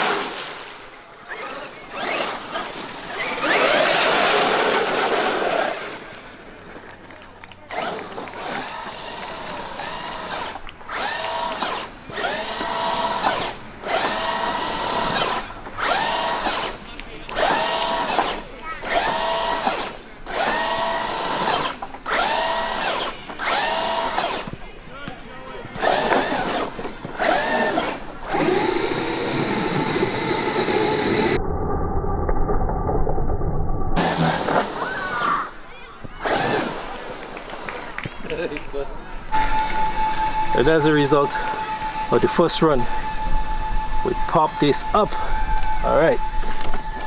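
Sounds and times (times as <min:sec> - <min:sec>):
electric motor whining: 0:07.7 - 0:24.6, 0:25.7 - 0:31.4, 0:34.0 - 0:35.6, 0:36.2 - 0:38.0, 0:39.3 - 0:47.0
low rumble: 0:28.4 - 0:34.0.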